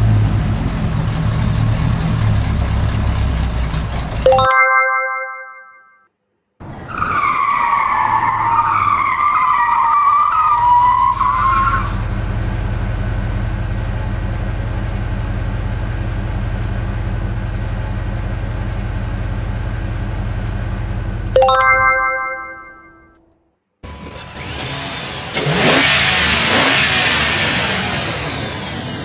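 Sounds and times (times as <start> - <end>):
chime: 4.3 - 5.9, 21.4 - 23.1.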